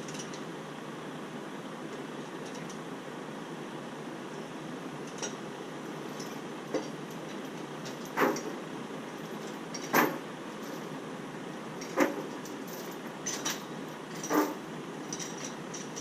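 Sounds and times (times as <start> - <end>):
sharp metallic clanks: 11.8 - 16.0.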